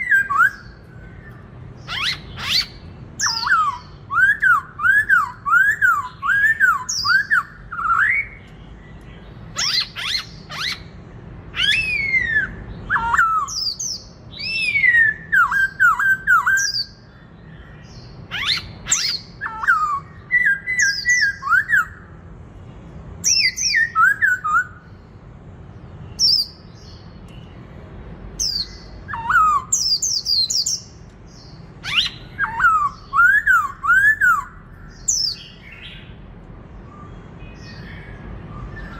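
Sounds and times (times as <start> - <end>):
bird singing whistled phrases: 0.0 - 8.5, 11.6 - 17.0, 18.3 - 22.1, 23.2 - 24.9, 28.4 - 36.1.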